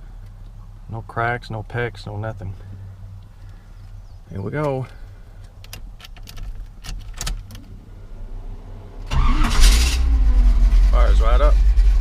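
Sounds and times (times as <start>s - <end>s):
truck engine starting and idling: 8.3s - 12.0s.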